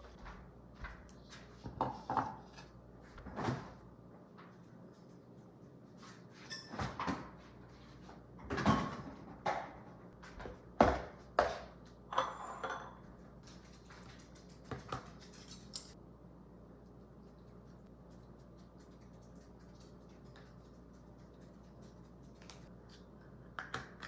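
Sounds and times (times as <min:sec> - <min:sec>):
low steady hum: 0:00.0 - 0:24.0
dishes knocking and clinking: 0:01.7 - 0:02.6, 0:10.8 - 0:13.0.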